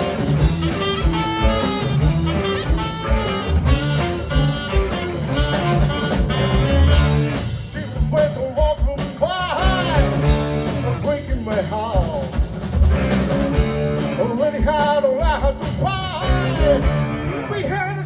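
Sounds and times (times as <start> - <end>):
lead melody with bending notes: 0.0 - 7.7
drums and bass rock beat: 0.0 - 18.0.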